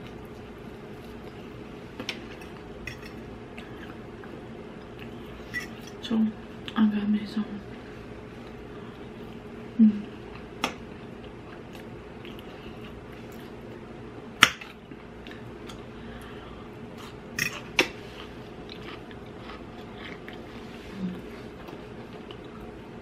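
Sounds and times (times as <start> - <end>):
person chewing: 10.2 - 13.8, 14.6 - 16.3, 16.9 - 22.8.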